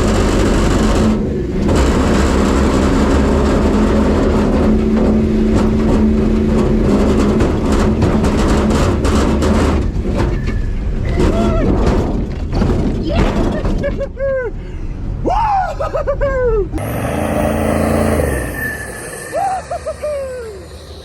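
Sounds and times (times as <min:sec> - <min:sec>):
truck engine running hard: 0:00.0 - 0:10.1, 0:16.8 - 0:21.0.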